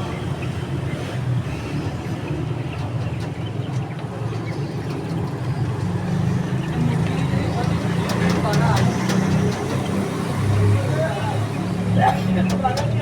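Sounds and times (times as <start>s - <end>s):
faint clicks: 2.6s - 11.6s.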